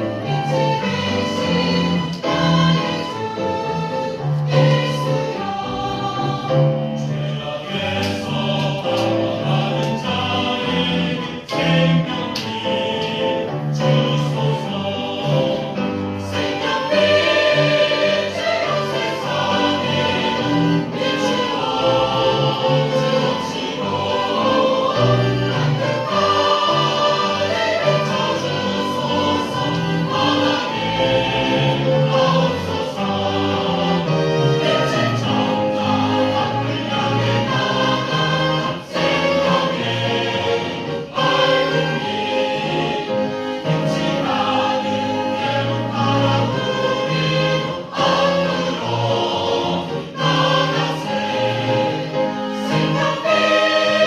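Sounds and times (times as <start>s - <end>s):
church choir singing: 0.0s - 54.0s
instrumental accompaniment: 0.0s - 54.0s.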